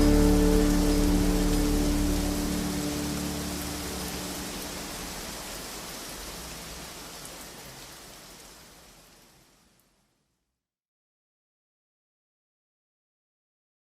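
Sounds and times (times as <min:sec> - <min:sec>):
low music chord: 0:00.0 - 0:05.5
steady rain hiss: 0:00.0 - 0:10.4.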